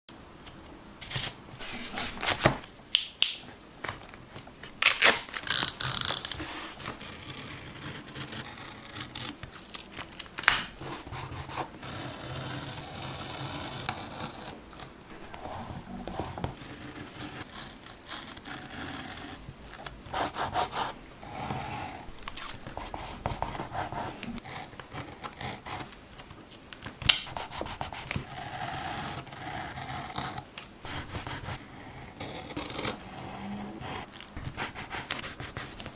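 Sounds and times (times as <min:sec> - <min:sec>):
paper and tape rustling: 0:00.5 - 0:02.7.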